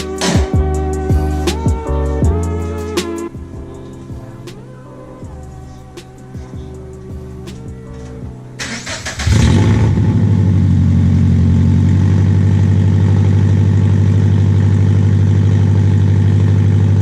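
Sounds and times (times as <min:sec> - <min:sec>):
car engine starting and idling: 0:00.0 - 0:17.0.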